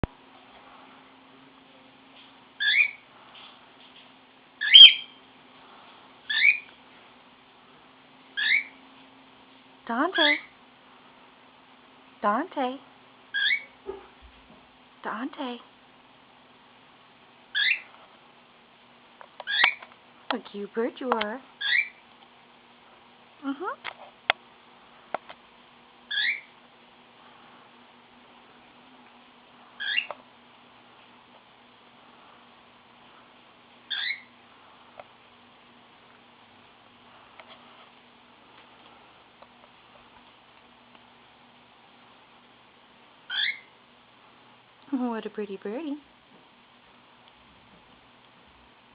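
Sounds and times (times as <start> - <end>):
bird whistling calls: 2.6 - 3.0, 4.6 - 5.2, 6.3 - 6.7, 8.4 - 8.8, 13.4 - 13.8, 17.6 - 17.9, 19.5 - 19.8, 21.6 - 22.0, 26.1 - 26.5, 29.8 - 30.1, 33.9 - 34.3, 43.3 - 43.7.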